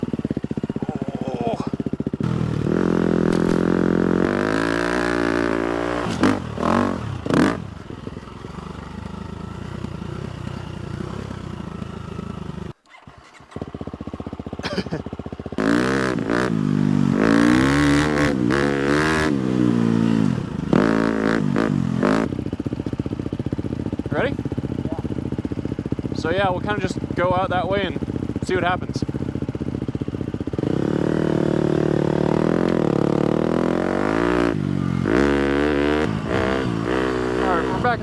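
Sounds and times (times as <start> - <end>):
motocross bike engines idling: 0.0 - 12.7, 13.6 - 38.0
engine throttle blips: 30.2 - 38.0.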